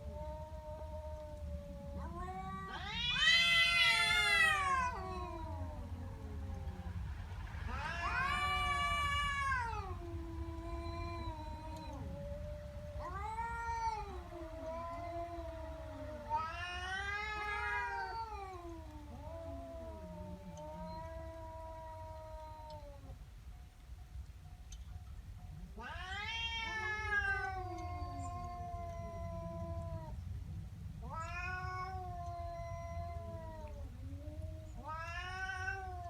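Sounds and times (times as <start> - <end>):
angry cat yowling: 1.8 - 6.9, 7.7 - 23.1, 31.1 - 36.0.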